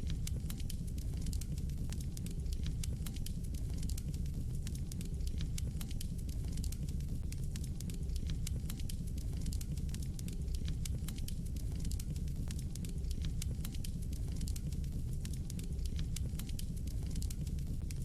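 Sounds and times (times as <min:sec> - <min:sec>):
fire crackling and popping: 0:00.0 - 0:18.0
low fire rumble: 0:00.0 - 0:18.0.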